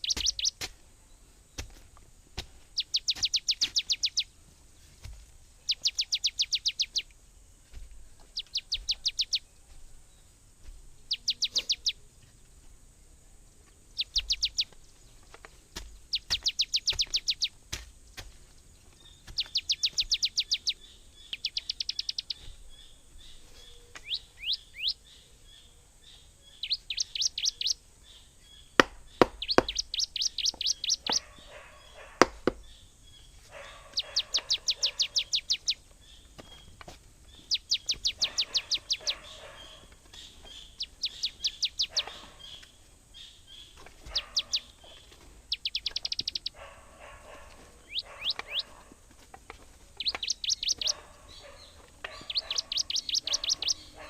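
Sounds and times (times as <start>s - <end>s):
bird calling in trills: 0.0s - 0.6s, 2.8s - 4.4s, 5.6s - 7.1s, 8.4s - 9.6s, 11.1s - 12.1s, 13.9s - 14.8s, 16.0s - 17.6s, 19.0s - 36.7s, 37.3s - 48.9s, 50.0s - 54.0s
sharp knocks: 28.8s - 29.9s, 32.2s - 32.6s.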